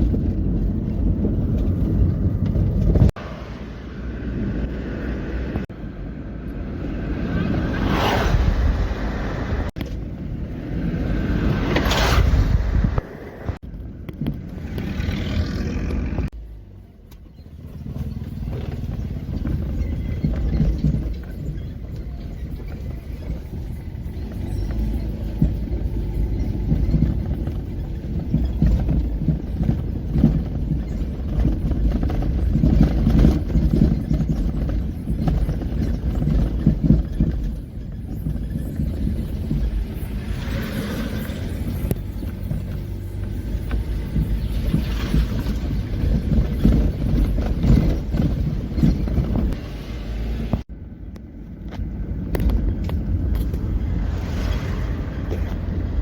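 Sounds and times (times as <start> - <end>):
low engine rumble: 0.0 - 56.0
pickup trucks driving past: 17.6 - 50.6.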